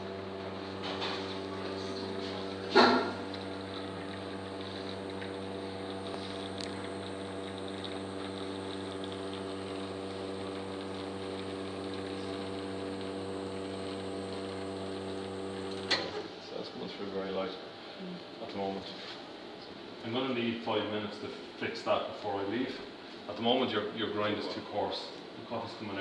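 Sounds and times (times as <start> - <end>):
espresso machine pump humming: 0.0 - 16.2.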